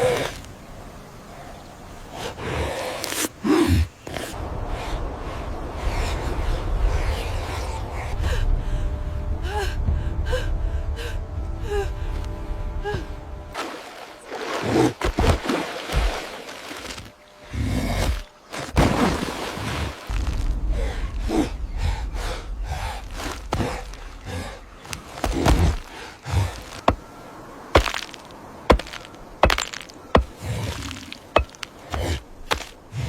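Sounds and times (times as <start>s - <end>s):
low rumble: 4.4s - 13.6s, 20.1s - 26.5s.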